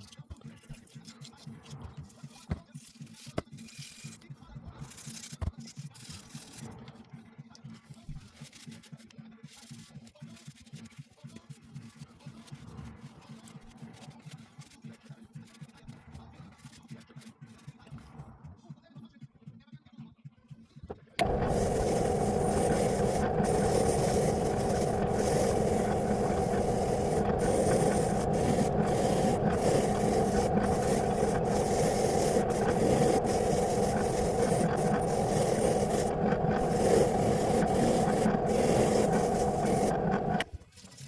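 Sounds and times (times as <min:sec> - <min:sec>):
power tool scrubbing metal: 0:21.2 - 0:40.4.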